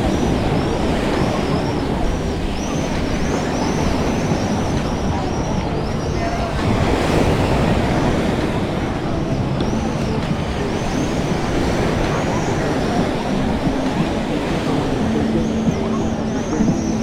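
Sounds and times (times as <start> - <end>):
faint indistinct voices: 0.0 - 17.0.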